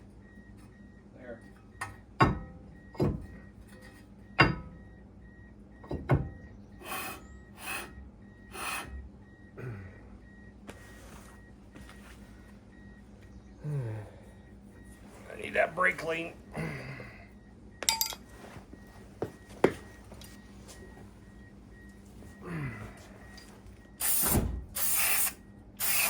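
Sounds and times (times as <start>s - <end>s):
faint repeating beep: 0.2s - 11.6s, 12.7s - 18.1s.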